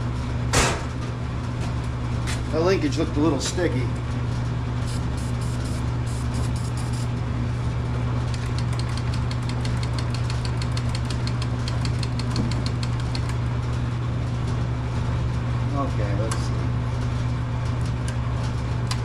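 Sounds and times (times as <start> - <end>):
fast light ticks: 8.3 - 13.4.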